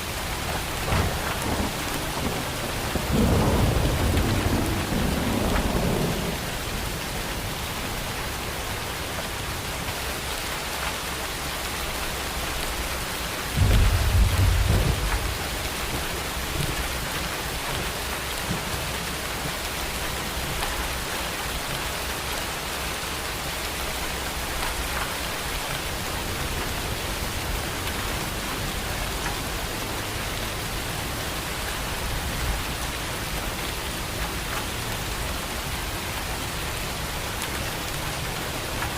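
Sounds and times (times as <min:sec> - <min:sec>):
heavy rain falling: 0:00.0 - 0:38.9
thunder rumbling: 0:00.4 - 0:07.6, 0:13.5 - 0:19.6.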